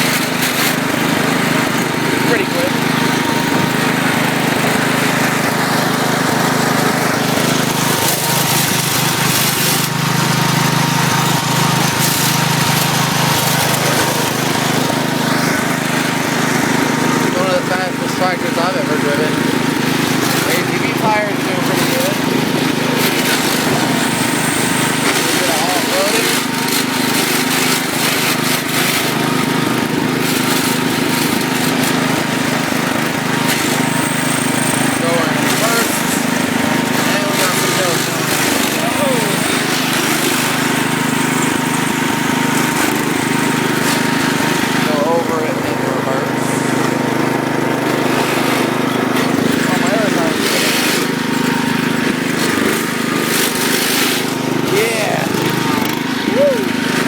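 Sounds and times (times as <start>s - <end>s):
garden tractor engine running: 0.0s - 57.0s.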